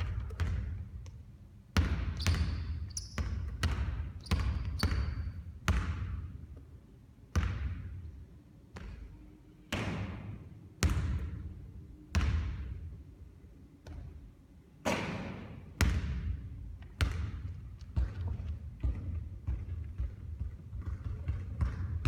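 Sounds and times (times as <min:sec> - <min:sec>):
basketballs bouncing on a court: 0:00.0 - 0:06.6, 0:07.3 - 0:13.0, 0:13.8 - 0:22.0.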